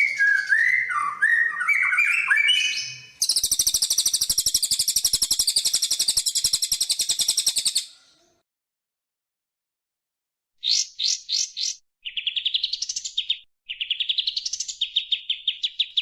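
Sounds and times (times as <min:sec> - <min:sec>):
songbird whistled notes: 0:00.0 - 0:07.9.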